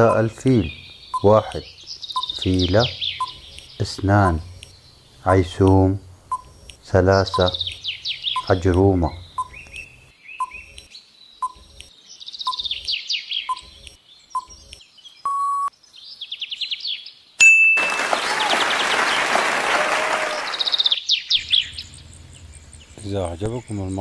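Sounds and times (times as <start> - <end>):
countdown ticks: 0.0 - 1.6, 2.2 - 2.6, 3.2 - 4.7, 5.6 - 7.8, 8.4 - 11.9
bird chirping: 0.0 - 19.4, 20.2 - 24.0
short steady beep: 15.3 - 15.7.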